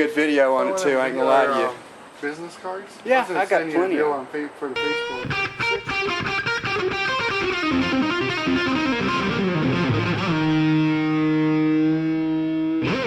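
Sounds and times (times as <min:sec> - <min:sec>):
distorted electric guitar: 0:04.8 - 0:13.0.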